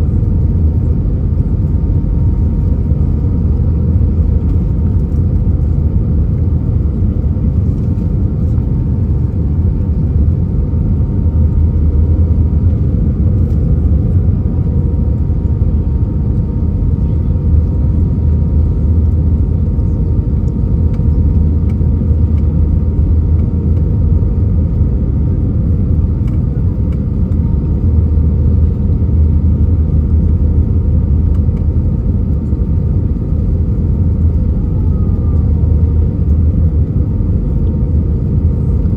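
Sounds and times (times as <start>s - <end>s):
airliner cabin rumble: 0.0s - 38.9s
faint steady whine: 0.0s - 38.9s.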